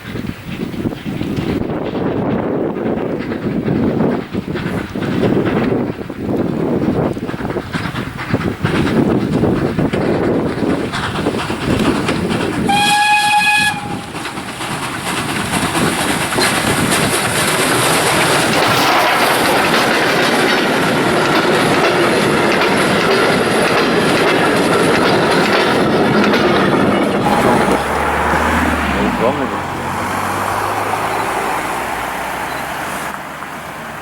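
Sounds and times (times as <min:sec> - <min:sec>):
train wheels clacking on rails: 0:00.0 - 0:34.0
steam locomotive whistle: 0:12.6 - 0:14.3, 0:27.2 - 0:29.7.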